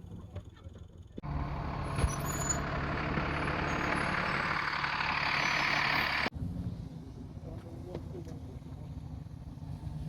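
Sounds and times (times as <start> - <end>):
large vehicle engine running: 0.0 - 10.0.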